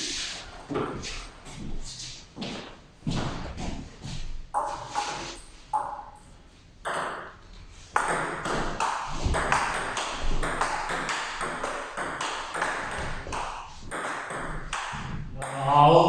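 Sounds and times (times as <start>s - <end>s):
ping pong ball hitting bats: 4.5s - 15.8s
ping pong ball bouncing on table: 4.6s - 6.2s, 6.8s - 7.4s, 8.0s - 15.7s.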